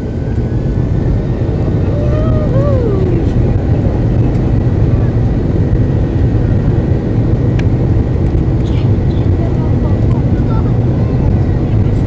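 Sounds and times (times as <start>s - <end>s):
airliner engines rumbling: 0.0s - 12.0s.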